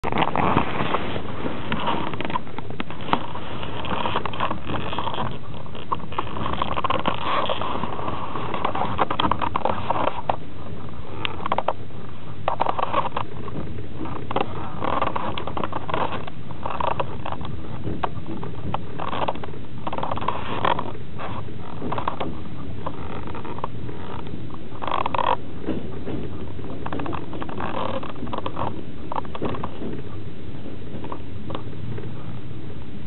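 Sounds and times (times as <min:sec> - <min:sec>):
train wheels rumbling on rails: 0:12.8 - 0:32.4.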